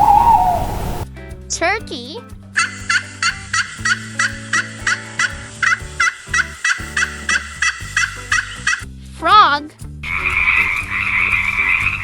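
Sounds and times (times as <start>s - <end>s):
turkey gobbling: 0.0s - 1.0s, 3.6s - 8.8s
soft background music: 0.0s - 12.0s.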